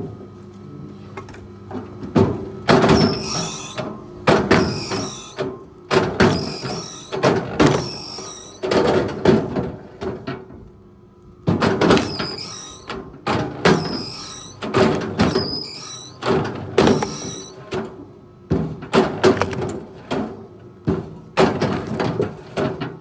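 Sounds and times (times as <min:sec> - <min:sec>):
high squeal: 0:03.0 - 0:03.8, 0:04.5 - 0:05.4, 0:06.2 - 0:08.6, 0:12.0 - 0:12.9, 0:13.8 - 0:14.6, 0:15.2 - 0:16.2, 0:16.8 - 0:17.6.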